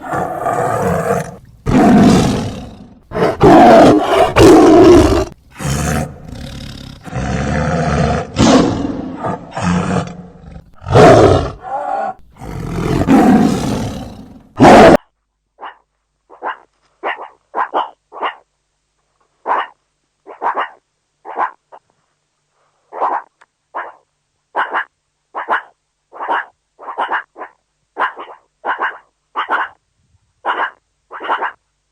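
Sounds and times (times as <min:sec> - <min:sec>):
large animal roaring and growling: 0:00.0 - 0:15.0.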